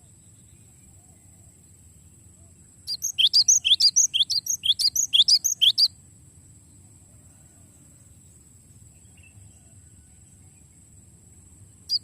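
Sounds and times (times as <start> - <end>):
faint high-pitched whine: 0.0 - 12.0
bird singing fast phrase: 2.9 - 5.9.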